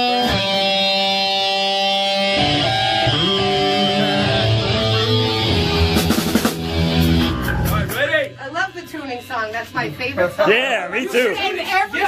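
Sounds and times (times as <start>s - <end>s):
electric guitar notes: 0.0s - 10.2s
low bass notes: 2.3s - 8.4s.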